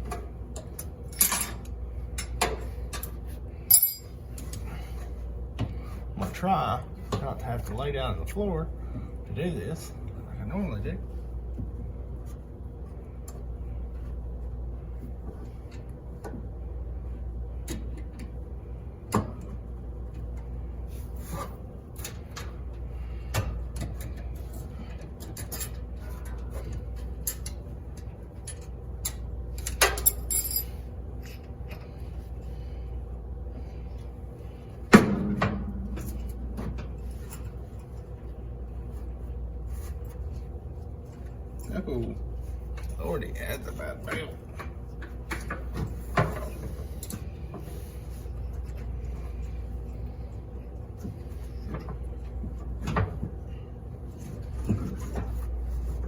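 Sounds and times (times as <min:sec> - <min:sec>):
steady low hum: 0:00.0 - 0:56.0
hand tools clinking on metal: 0:03.7 - 0:04.1
sharp ringing metal clank: 0:03.7 - 0:04.1.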